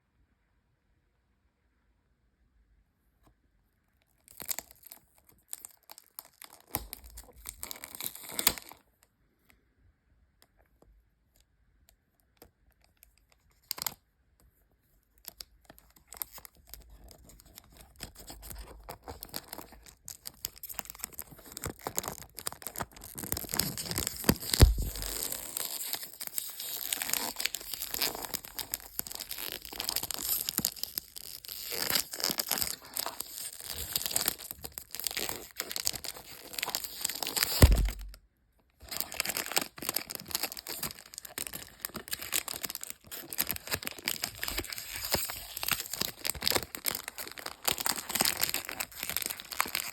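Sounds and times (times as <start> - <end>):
box packaging tearing and crinkling: 6.3 - 8.7, 16.2 - 38.2, 38.8 - 49.9
packaging clicks and rustles: 15.7 - 38.2, 38.8 - 49.9
heavy thump: 37.6 - 38.2.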